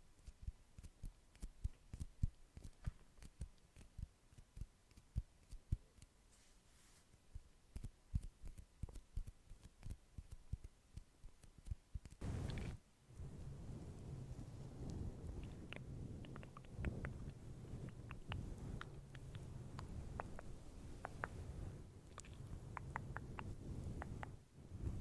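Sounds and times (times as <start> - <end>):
soft mouth clicks and smacks: 7.7 - 12.8, 14.8 - 25.0.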